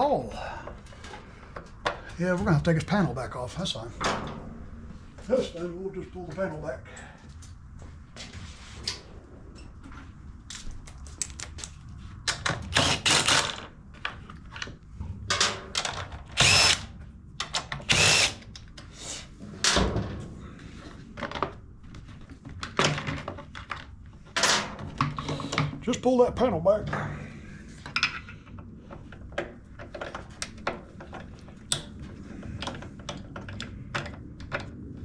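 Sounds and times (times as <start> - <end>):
cordless drill spinning: 12.7 - 13.6, 16.4 - 16.9, 17.8 - 18.5.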